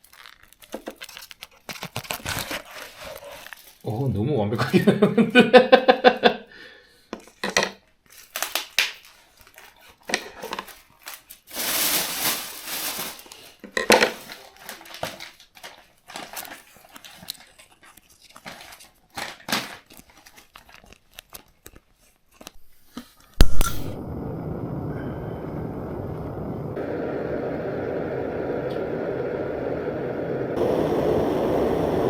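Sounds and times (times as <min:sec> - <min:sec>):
plastic packaging crinkling: 0:00.0 - 0:03.9, 0:08.0 - 0:23.2.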